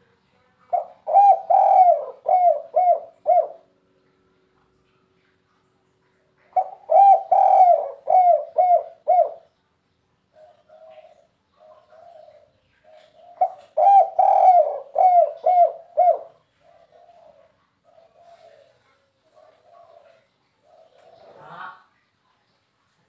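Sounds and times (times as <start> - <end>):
dove cooing: 0.7 - 3.7, 6.4 - 9.5, 10.3 - 21.9.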